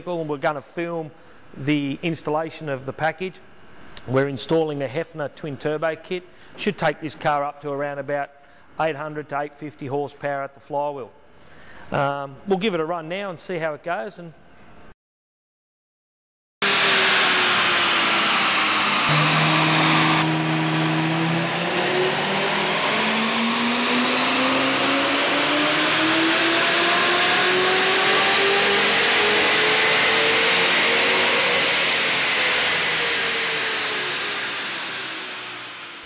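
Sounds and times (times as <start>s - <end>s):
car engine revving on dyno: 16.6s - 36.0s.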